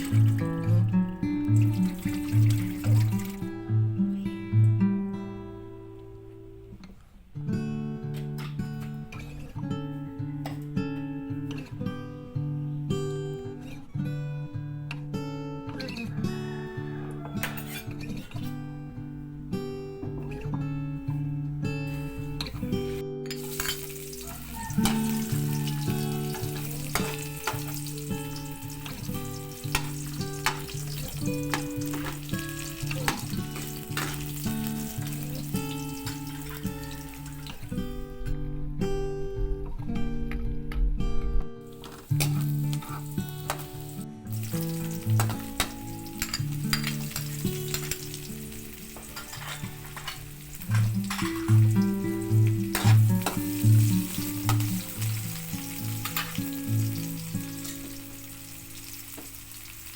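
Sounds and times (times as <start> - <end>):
food sizzling in a pan: 0.0 - 3.5, 21.8 - 38.0, 41.7 - 59.9
acoustic guitar music: 0.0 - 59.9.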